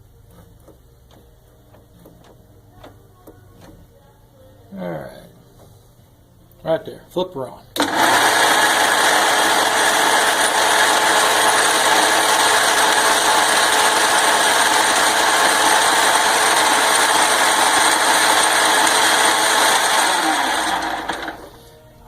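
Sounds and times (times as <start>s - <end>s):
metal lathe turning: 7.8s - 21.6s.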